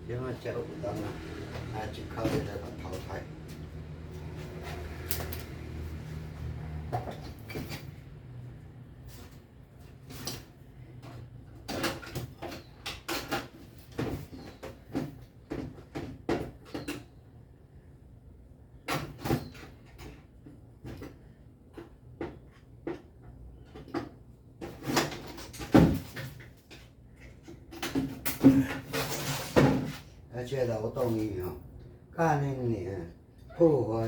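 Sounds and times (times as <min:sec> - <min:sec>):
objects knocking and rattling: 0:19.0 - 0:30.0.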